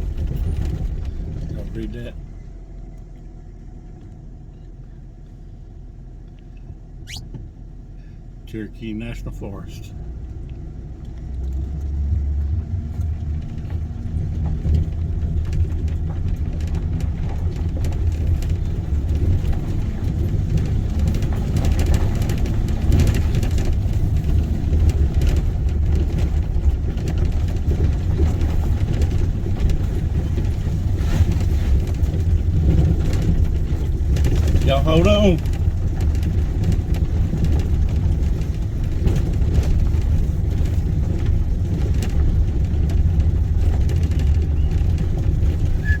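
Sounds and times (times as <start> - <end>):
truck engine and tyres rumbling: 0.0 - 46.0
knocks and rattles from bumps: 12.2 - 46.0.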